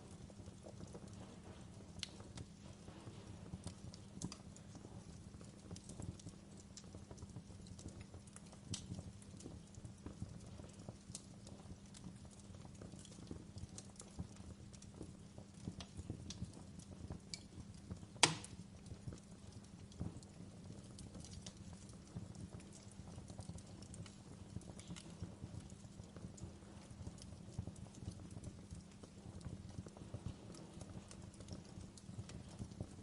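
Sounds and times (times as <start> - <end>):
wood fire crackling: 0.0 - 33.0
sharp loud fire pop: 18.2 - 18.6.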